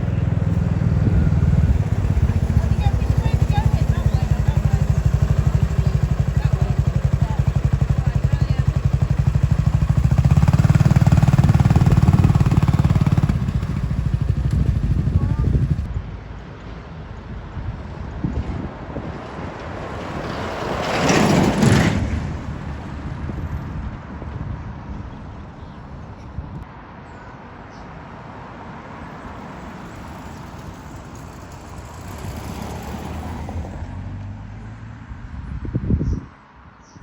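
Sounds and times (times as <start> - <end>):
tractors driving past: 0.0 - 15.9, 19.1 - 24.5, 28.6 - 35.4
low engine hum: 0.0 - 16.1.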